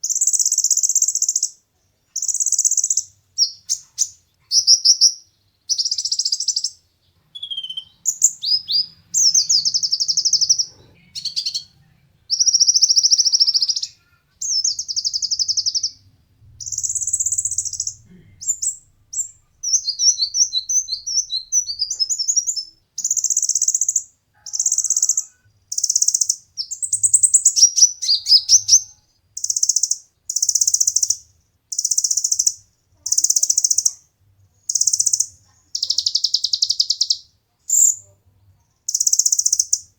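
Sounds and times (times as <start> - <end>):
bird singing high trills: 7.3 - 11.7, 16.6 - 31.2.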